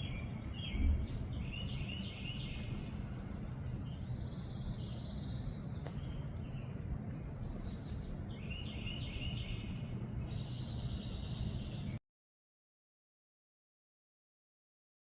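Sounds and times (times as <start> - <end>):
bird trill: 0.0 - 12.0
small songbirds chirping: 0.0 - 12.0
steady outdoor background noise: 0.0 - 12.0.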